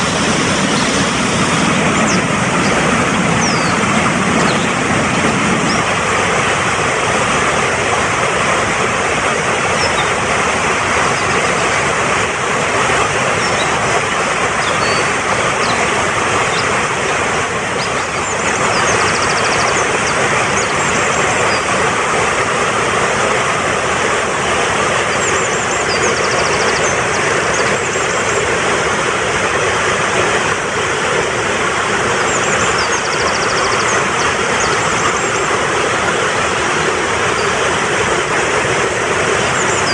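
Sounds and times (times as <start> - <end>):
bird chirps and trills: 0.0 - 6.1, 9.7 - 11.8, 13.2 - 21.8, 24.9 - 28.5, 32.1 - 35.9, 37.2 - 37.7, 38.9 - 39.9
mountain stream rushing: 0.0 - 39.9.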